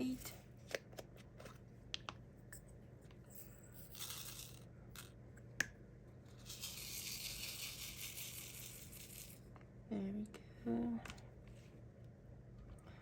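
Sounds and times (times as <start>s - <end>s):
small beads rattling in plastic tray: 6.4s - 9.4s.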